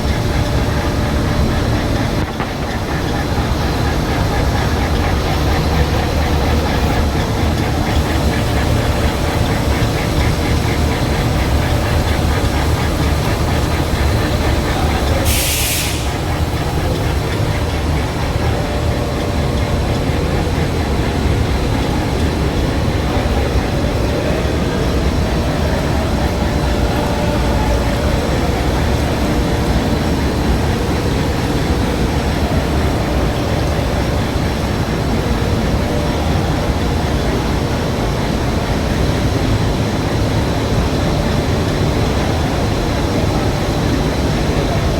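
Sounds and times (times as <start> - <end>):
coating machine running: 0.0 - 44.9
short hiss: 15.3 - 16.1.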